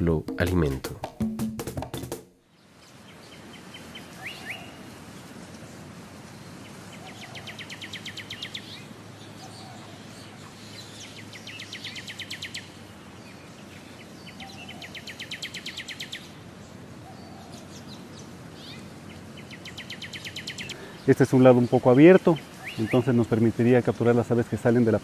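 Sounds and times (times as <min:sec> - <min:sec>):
rainforest background hiss: 0:00.0 - 0:25.0
bird chirping and trilling: 0:02.9 - 0:04.8, 0:07.0 - 0:16.4, 0:17.1 - 0:23.5.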